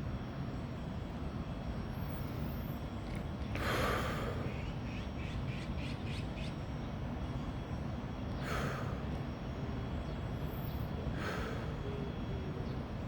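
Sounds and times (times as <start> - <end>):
person breathing deeply: 3.6 - 4.5, 8.4 - 9.2, 10.4 - 11.9.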